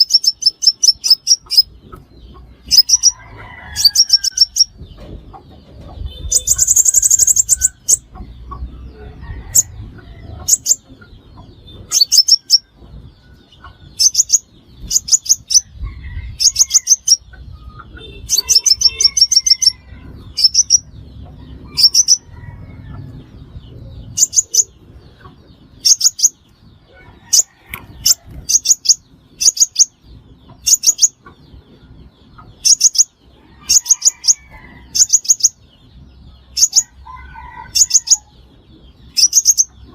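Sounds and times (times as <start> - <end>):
sunbird chirping: 0.0 - 4.7, 6.0 - 9.7, 10.4 - 15.7, 16.4 - 22.5, 24.0 - 26.6, 27.3 - 31.2, 37.6 - 39.9.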